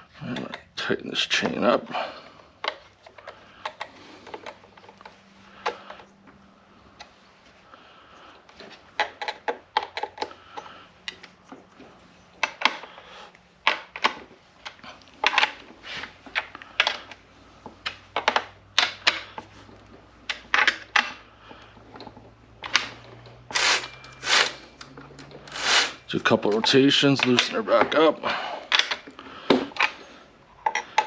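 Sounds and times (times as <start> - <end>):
chainsaw chain metallic clattering: 22.9 - 27.8.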